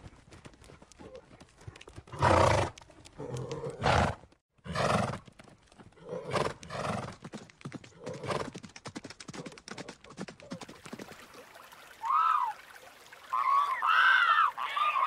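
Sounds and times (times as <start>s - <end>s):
hooves clopping: 0.0s - 11.4s
horses whinnying: 13.3s - 15.0s.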